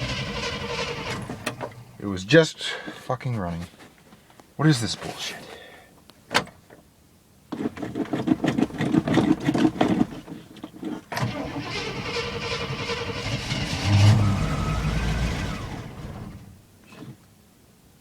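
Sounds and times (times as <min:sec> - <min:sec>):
starter cranking engine: 0:00.0 - 0:01.6, 0:11.2 - 0:16.5.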